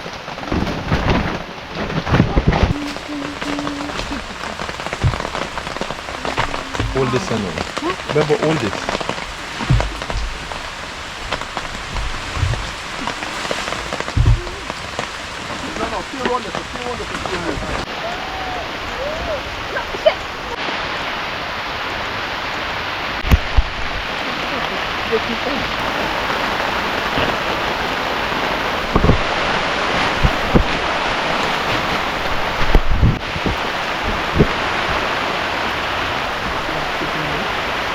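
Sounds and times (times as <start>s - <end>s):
heavy rain pattering: 0.0s - 37.9s
dull low thumps: 2.7s - 17.9s.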